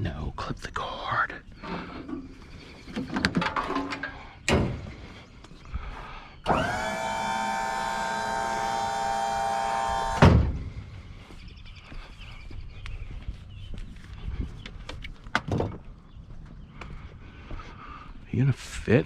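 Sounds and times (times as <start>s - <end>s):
small electric motor whirring: 6.5s - 10.2s
motor stopping thump: 6.5s - 10.9s.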